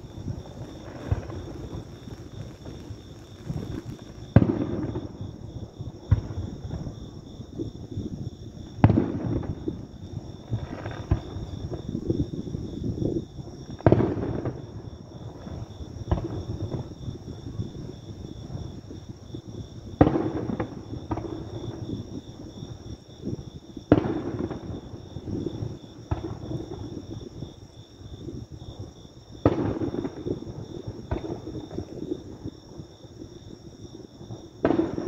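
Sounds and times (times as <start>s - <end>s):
firework shells booming: 0.0s - 6.9s, 34.6s - 35.0s
soft firework thuds: 0.3s - 5.2s.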